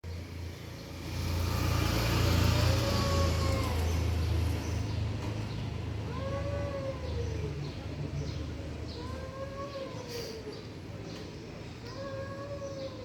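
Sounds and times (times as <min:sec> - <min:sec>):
vehicle rumbling by: 0:00.0 - 0:08.9
cat yowling: 0:06.1 - 0:07.6, 0:11.9 - 0:13.0.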